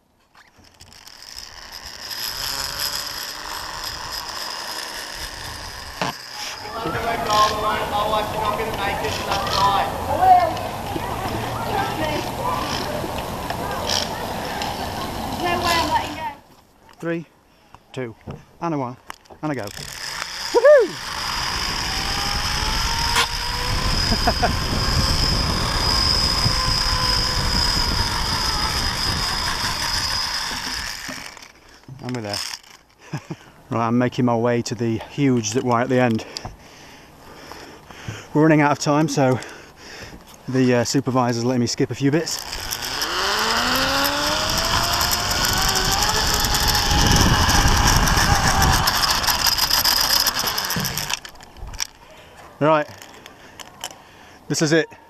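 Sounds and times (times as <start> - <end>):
pulleys whining on steel cable: 0.3 - 16.4, 19.5 - 33.4, 41.7 - 52.0.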